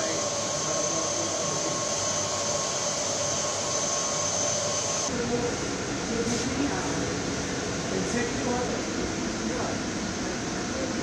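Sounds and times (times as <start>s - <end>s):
mechanical whirring with whine: 0.0s - 6.0s.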